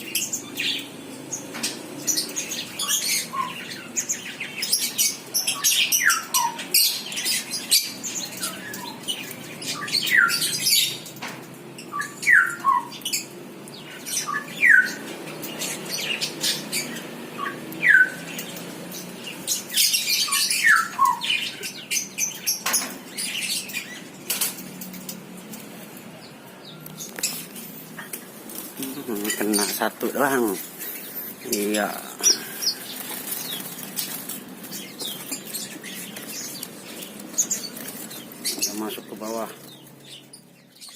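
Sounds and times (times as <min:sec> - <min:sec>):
small birds chirping: 0:00.0 - 0:40.9
rustling: 0:26.9 - 0:40.2.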